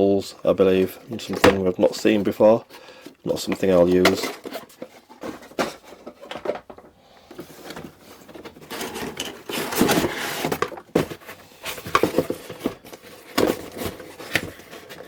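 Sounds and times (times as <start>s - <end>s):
packaging rustling: 0.5s - 15.0s.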